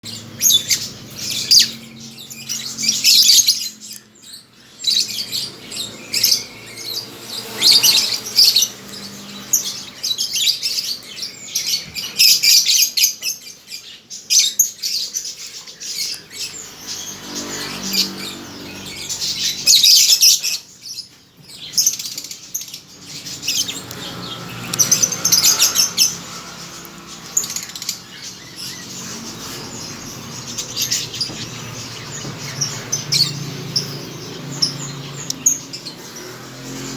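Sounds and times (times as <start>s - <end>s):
lovebirds chirping: 0.0s - 36.9s.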